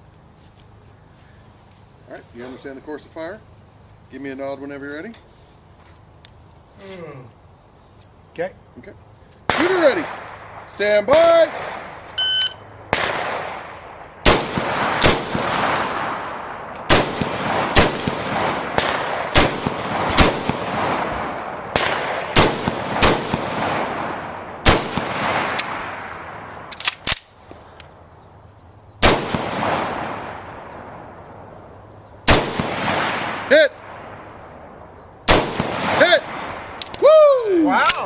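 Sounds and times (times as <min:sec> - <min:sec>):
rifle gunshots with rolling echo: 0:09.5 - 0:27.3, 0:29.0 - 0:31.6, 0:32.2 - 0:36.8.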